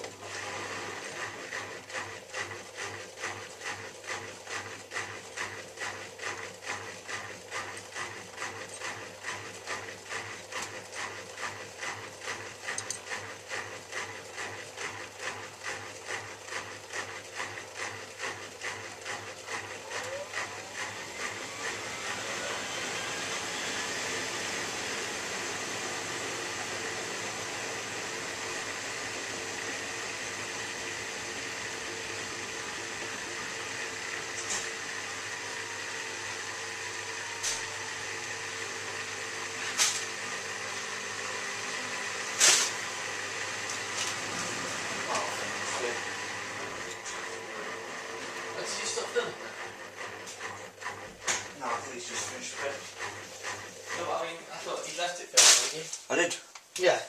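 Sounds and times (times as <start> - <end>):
washing machine motor whine: 0.0 - 55.1.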